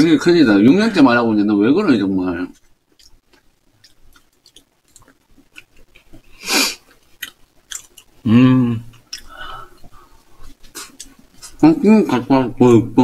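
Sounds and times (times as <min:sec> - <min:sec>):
person chewing cake: 0:02.5 - 0:08.2, 0:08.9 - 0:11.6
person humming mm: 0:08.2 - 0:09.7.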